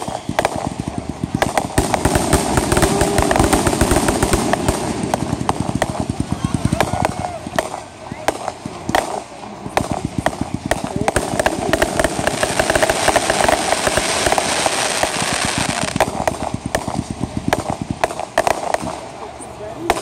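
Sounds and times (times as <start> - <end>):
fireworks crackling: 0.0 - 20.0
loud firework cracks: 0.0 - 20.0.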